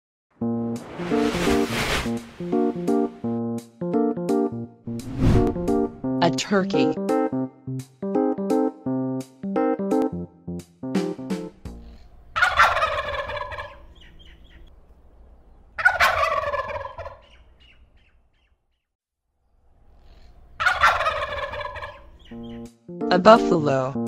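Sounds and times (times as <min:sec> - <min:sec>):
turkey gobbling: 0:11.9 - 0:14.7, 0:15.7 - 0:18.5, 0:20.5 - 0:22.6.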